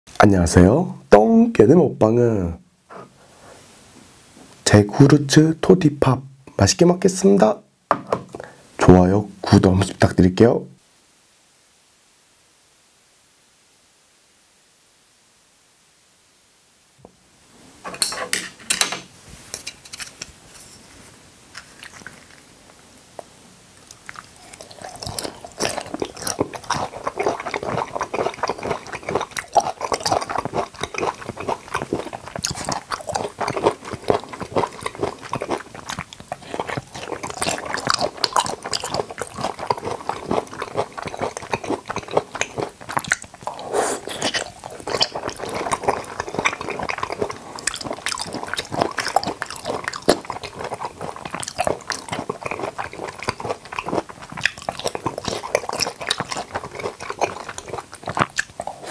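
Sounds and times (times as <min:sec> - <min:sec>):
chewing and biting fruit: 0:23.8 - 0:58.9.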